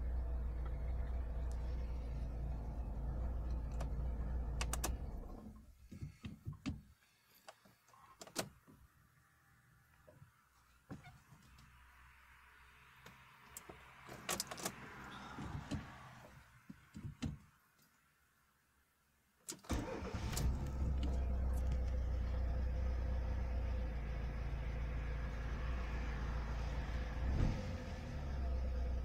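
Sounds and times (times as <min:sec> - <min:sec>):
car engine starting and idling: 0:00.0 - 0:06.9, 0:11.6 - 0:16.6, 0:19.5 - 0:29.0.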